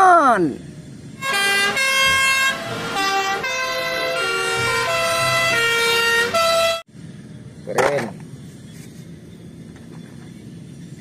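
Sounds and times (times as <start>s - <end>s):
two-tone fire engine sirens: 1.2s - 6.9s.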